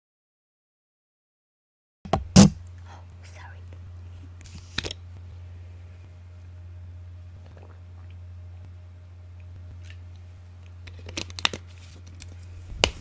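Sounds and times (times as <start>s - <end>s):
steady low hum: 2.1s - 13.0s
sharp clicks and crackles: 9.7s - 13.0s.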